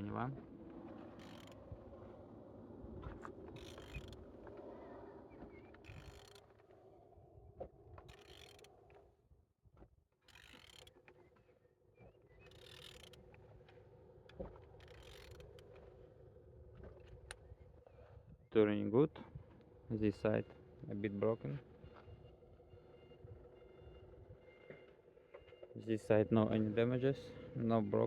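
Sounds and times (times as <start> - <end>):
engine creaking and clicking: 0.1 - 2.2, 3.0 - 6.8, 7.6 - 9.1, 10.2 - 17.9, 22.9 - 25.8.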